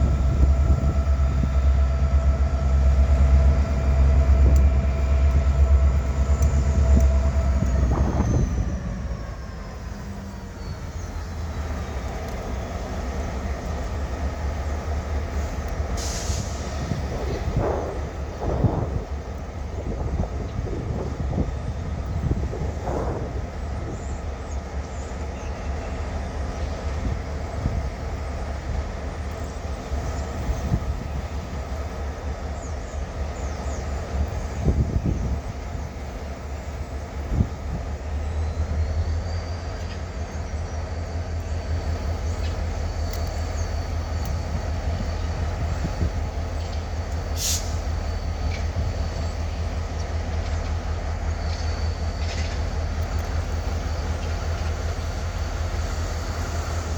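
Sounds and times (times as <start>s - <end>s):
diesel locomotive engine rumble: 0.0s - 56.9s.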